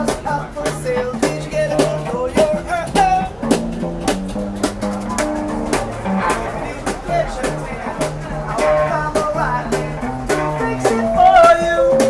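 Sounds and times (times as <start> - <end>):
drum hits: 0.0 - 12.0
guitar: 0.0 - 12.0
person singing: 6.2 - 12.0.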